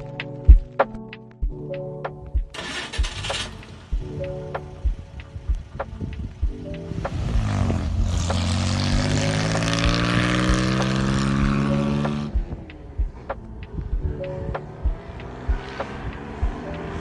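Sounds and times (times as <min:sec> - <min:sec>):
faint background music with beat: 0:00.0 - 0:17.0
pickup engine revving: 0:07.2 - 0:12.4.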